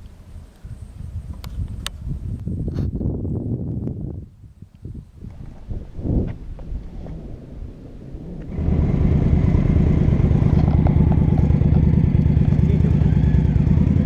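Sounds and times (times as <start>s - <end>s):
motorcycle engine starting and idling: 6.6s - 14.0s.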